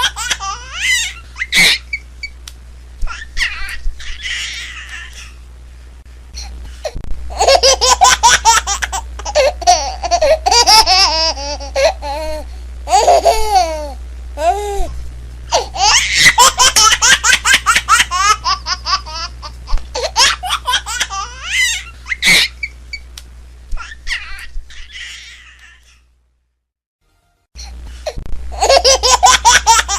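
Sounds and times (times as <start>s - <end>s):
young child laughing: 0.0s - 2.0s, 7.3s - 22.7s, 23.8s - 26.0s, 28.6s - 29.9s.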